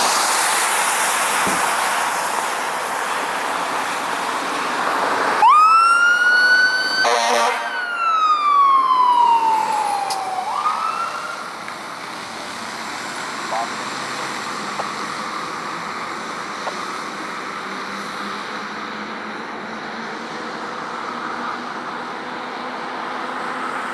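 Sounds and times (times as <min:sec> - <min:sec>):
vehicle noise: 0:00.0 - 0:23.9
emergency vehicle siren: 0:04.6 - 0:17.2
horn blast: 0:07.0 - 0:08.0.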